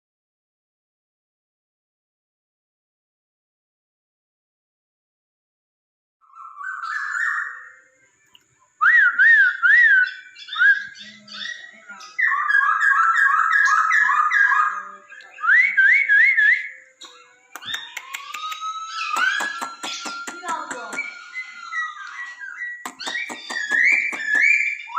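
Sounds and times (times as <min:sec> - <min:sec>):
bird singing whistled phrases: 0:06.2 - 0:24.9
sharp clicks: 0:17.0 - 0:21.2, 0:22.8 - 0:24.6.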